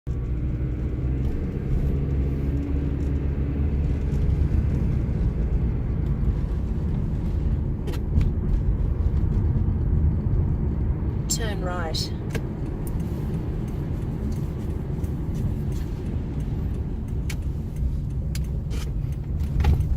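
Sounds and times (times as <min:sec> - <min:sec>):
car interior engine and tyre rumble: 0:00.0 - 0:19.9
sharp ticks: 0:12.3 - 0:19.9.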